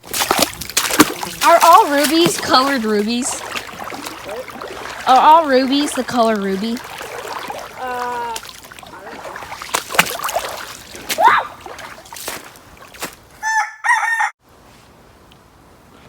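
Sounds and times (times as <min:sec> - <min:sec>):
rooster crowing: 0:13.4 - 0:14.4.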